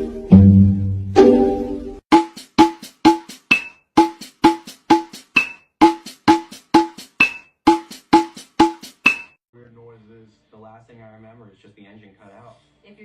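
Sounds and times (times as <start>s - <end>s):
wood block percussion beat: 2.1s - 9.4s.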